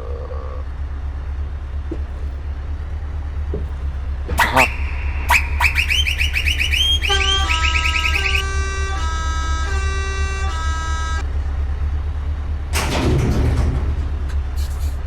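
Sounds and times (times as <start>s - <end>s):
truck diesel engine idling: 0.0s - 15.0s
high chirping tones: 4.4s - 11.2s.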